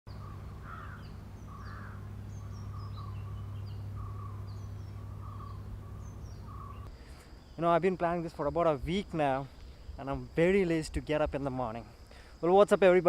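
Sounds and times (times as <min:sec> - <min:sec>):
birds calling: 0:00.1 - 0:08.5
steady low hum: 0:00.1 - 0:12.4.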